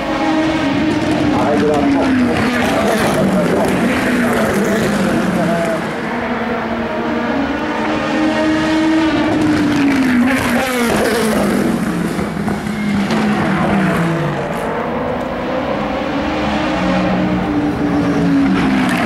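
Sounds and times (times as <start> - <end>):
race car engines passing: 0.0 - 19.0.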